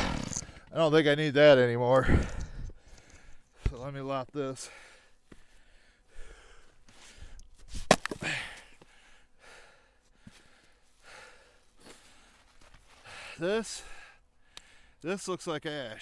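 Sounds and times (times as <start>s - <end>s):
man breathing hard: 2.0s - 3.7s, 4.6s - 7.4s, 8.2s - 15.0s.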